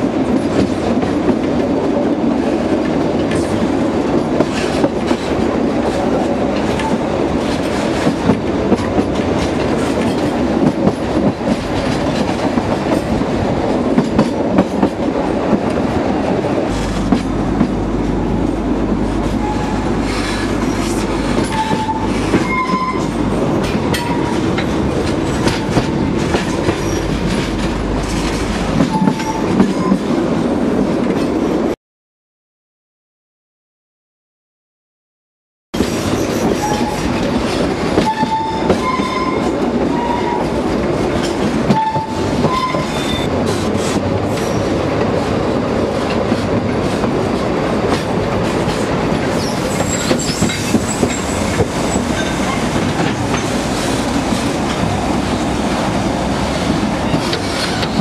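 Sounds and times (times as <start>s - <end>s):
train wheels clattering over rail joints: 2.7s - 15.9s, 46.0s - 55.0s, 56.5s - 58.0s
high-pitched wheel squeals: 21.5s - 23.2s, 38.0s - 40.4s, 41.8s - 43.3s.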